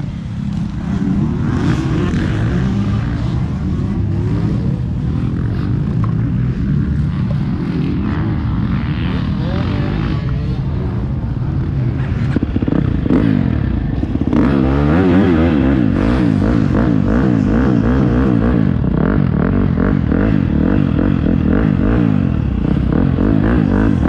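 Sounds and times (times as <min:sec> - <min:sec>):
motocross bike engine revving: 0:00.0 - 0:24.0.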